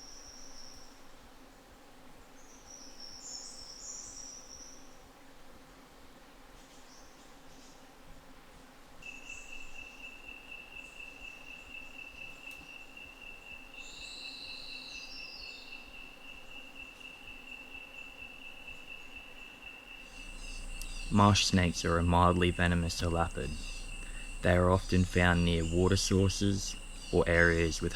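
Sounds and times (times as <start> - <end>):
insect high-pitched trill: 9.0 - 27.9
chirping call of falling notes: 20.2 - 27.9.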